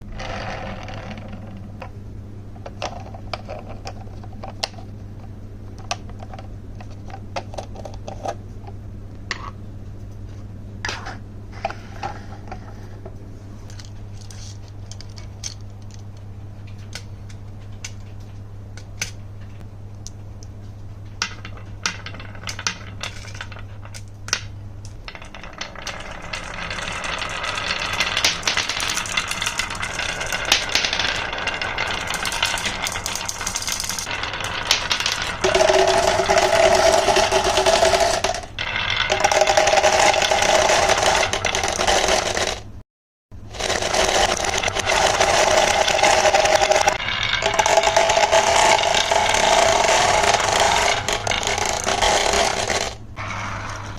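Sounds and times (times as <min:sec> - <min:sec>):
steady low hum: 0:00.0 - 0:42.8
continuous rattle: 0:25.0 - 0:42.7, 0:43.5 - 0:53.9
marbles clicking down wooden run: 0:25.1 - 0:42.7, 0:43.5 - 0:53.9.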